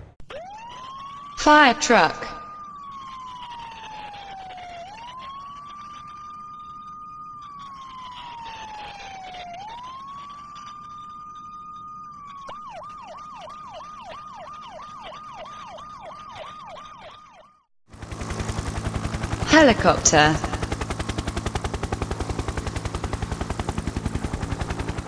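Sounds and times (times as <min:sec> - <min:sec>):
fire truck siren: 0:00.3 - 0:25.0.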